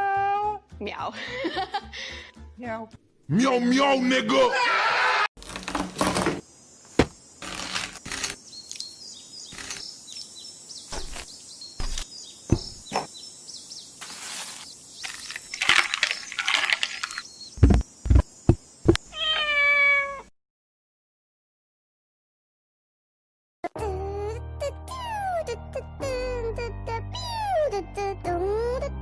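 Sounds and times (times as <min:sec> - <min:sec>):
loud thumps: 0:05.6 - 0:07.2, 0:11.8 - 0:13.1
cat meowing: 0:19.1 - 0:20.3.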